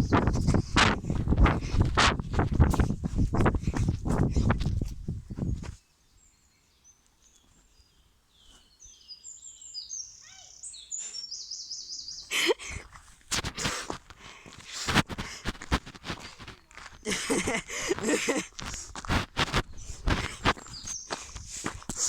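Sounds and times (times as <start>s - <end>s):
songbird singing with trill: 5.9s - 12.3s, 20.7s - 21.2s
rustling and handling noise: 12.9s - 22.0s.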